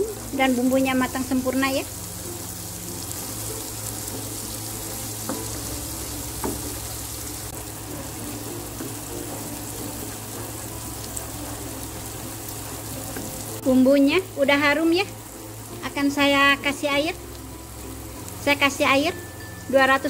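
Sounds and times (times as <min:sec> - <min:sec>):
spice paste sizzling in oil: 0:00.0 - 0:20.0
spatula knocking against pan: 0:05.2 - 0:06.8.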